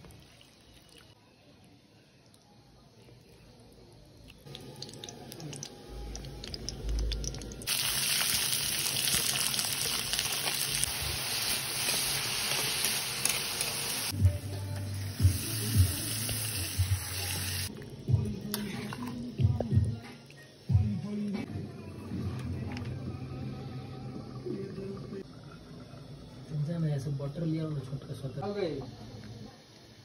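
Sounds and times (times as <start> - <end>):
onions sizzling in hot oil: 7.6 - 17.7.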